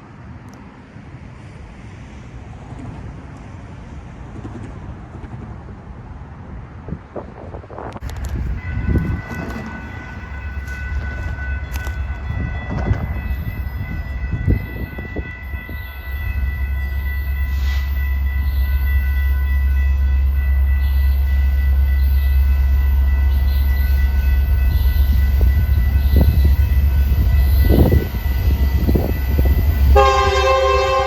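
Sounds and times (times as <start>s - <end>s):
freight train rumbling: 0.0s - 31.0s
steady high-pitched tones: 8.1s - 31.0s.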